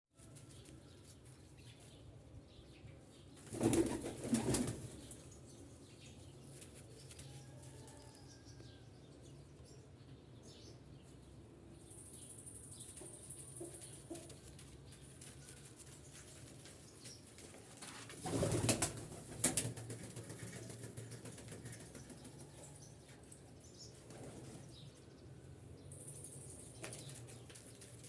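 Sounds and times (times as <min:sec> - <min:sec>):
pigeon wings flapping: 0:03.4 - 0:04.9, 0:17.8 - 0:22.2.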